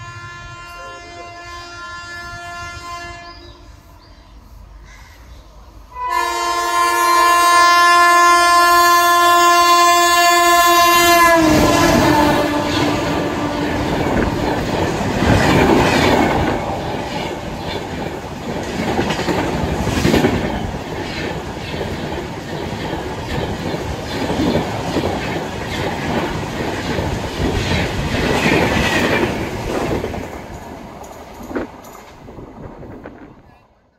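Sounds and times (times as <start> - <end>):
locomotive horn chord: 0.0 - 3.7, 5.9 - 14.4
train wheels clattering over rail joints: 12.8 - 33.1.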